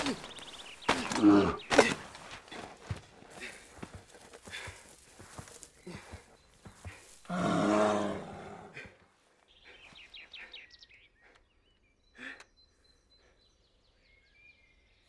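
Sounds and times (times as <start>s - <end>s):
bird chirps: 0.0s - 2.4s, 3.8s - 7.3s, 9.3s - 15.0s.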